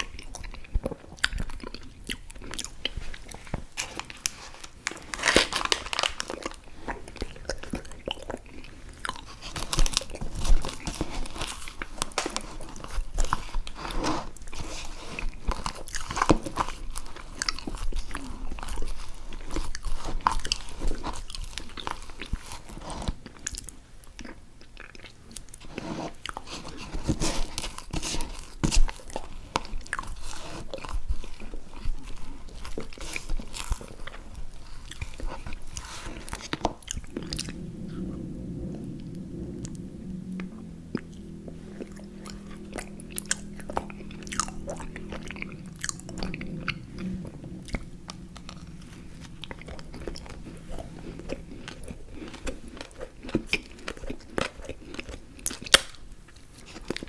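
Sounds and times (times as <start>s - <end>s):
person chewing crunchy food: 41.1s - 55.9s.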